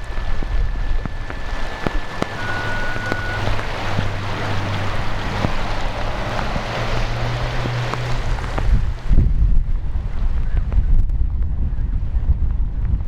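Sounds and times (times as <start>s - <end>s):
thin whistle: 0.0s - 5.7s
raindrops striking: 0.0s - 9.6s
rush of wind: 0.0s - 13.0s
wind buffeting microphone: 0.0s - 13.0s.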